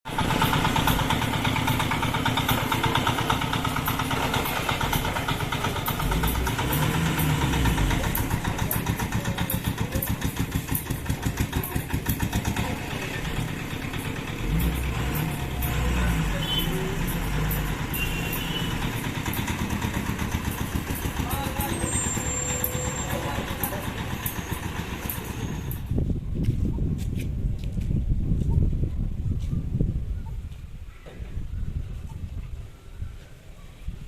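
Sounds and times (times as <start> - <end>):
heavy vehicles revving: 0.1 - 25.9
vehicle engines idling: 0.1 - 26.0.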